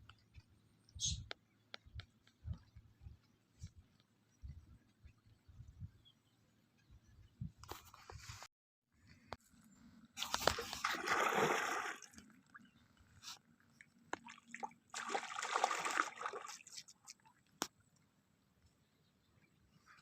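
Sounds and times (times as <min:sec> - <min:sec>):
water splashing: 0:10.2 - 0:12.3, 0:14.2 - 0:17.4.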